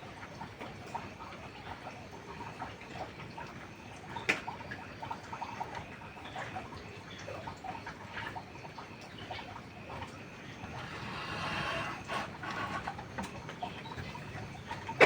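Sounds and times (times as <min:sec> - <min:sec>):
rain hissing: 0:10.6 - 0:14.4.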